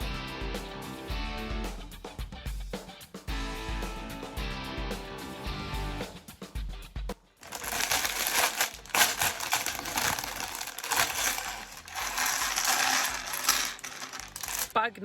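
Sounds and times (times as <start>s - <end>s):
plastic bag crinkling: 7.4s - 14.7s
plastic toy bricks clattering: 7.4s - 14.7s.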